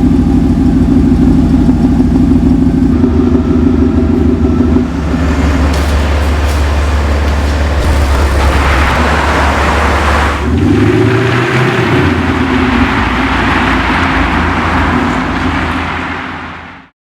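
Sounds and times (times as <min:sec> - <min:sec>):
car engine drone: 0:00.0 - 0:16.9
rush of noise: 0:04.8 - 0:16.8.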